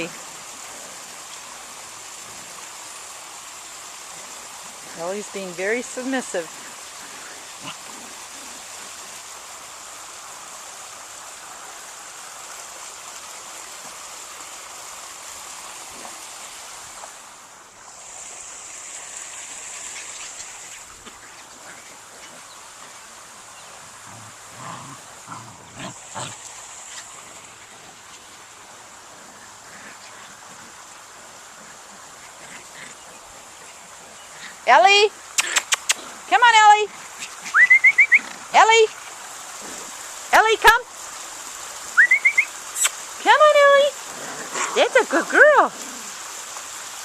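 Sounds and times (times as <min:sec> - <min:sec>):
steady hiss: 0:00.0 - 0:47.0
puppies playing: 0:04.0 - 0:09.5, 0:19.3 - 0:40.1, 0:44.0 - 0:46.3
puppy vocalisations: 0:35.4 - 0:38.7, 0:44.2 - 0:46.2.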